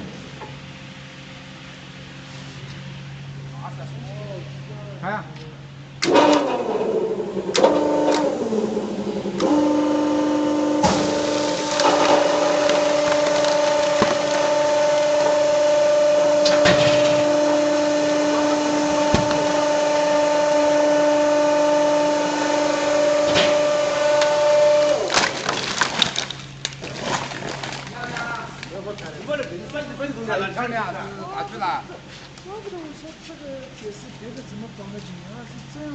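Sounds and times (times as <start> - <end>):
hydraulic press whine: 6.0 - 28.7.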